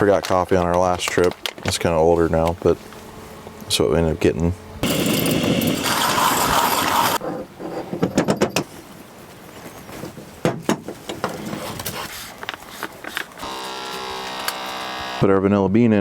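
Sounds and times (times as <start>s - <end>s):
loud rushing scraping noise: 4.8s - 7.2s.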